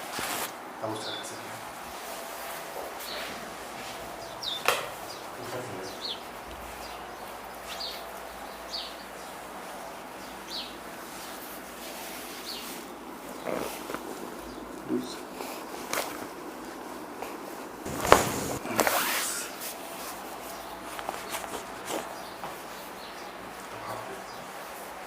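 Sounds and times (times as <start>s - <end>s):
steady hiss: 0.0s - 25.0s
small bird chirping: 4.2s - 9.5s, 10.2s - 10.8s.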